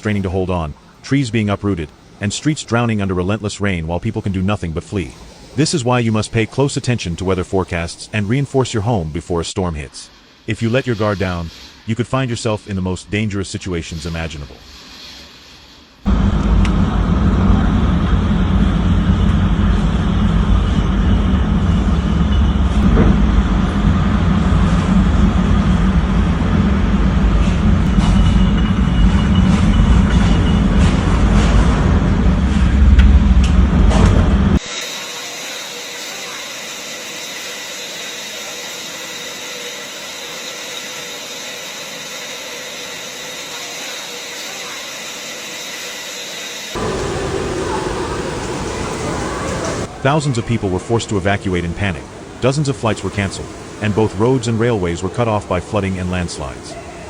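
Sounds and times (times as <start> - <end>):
steady hiss: 0.0 - 16.2, 46.8 - 56.8
faint constant high tones: 35.0 - 57.0
wind buffeting microphone: 46.8 - 55.2
rushing wind: 46.8 - 57.0.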